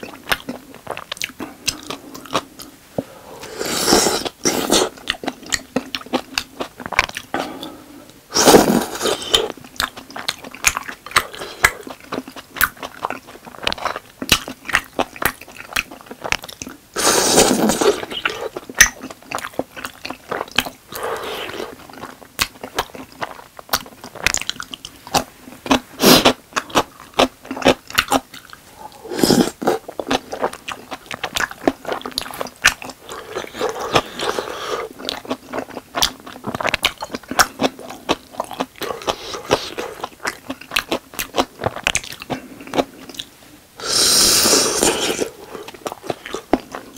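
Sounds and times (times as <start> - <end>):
wet chewing and mouth sounds: 0.0 - 3.1, 3.8 - 7.8, 8.4 - 46.9.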